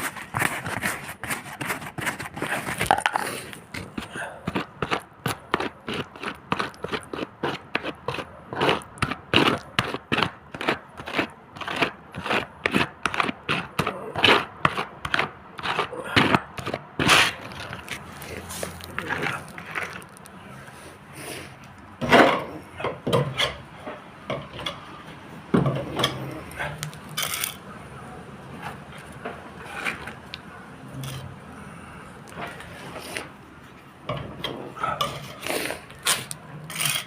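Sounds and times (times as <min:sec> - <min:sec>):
scraping strokes: 0:00.0 - 0:21.5, 0:34.8 - 0:37.0.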